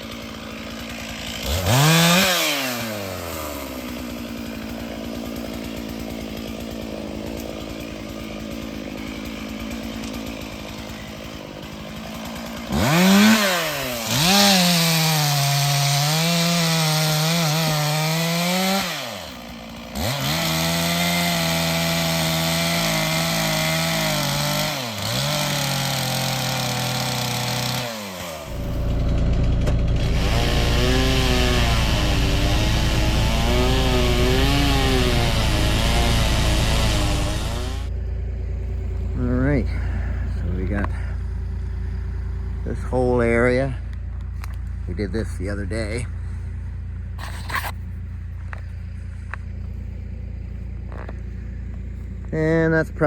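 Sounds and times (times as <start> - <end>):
chainsaw cutting wood: 0.0 - 43.4, 47.2 - 47.8
low rumble: 28.5 - 47.2.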